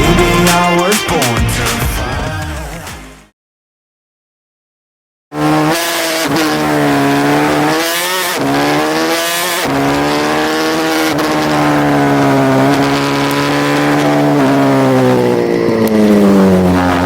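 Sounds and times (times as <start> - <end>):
motorbike engine revving: 5.3 - 17.0.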